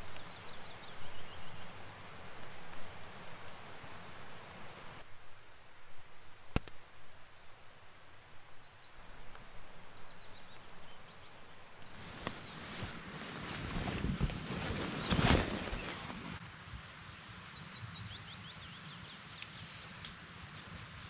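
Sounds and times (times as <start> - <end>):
faint high bird chirps: 0.0 - 6.4.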